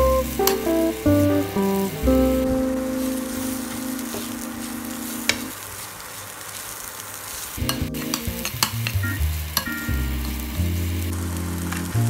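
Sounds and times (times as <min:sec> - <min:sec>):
food sizzling in oil: 0:03.0 - 0:12.0.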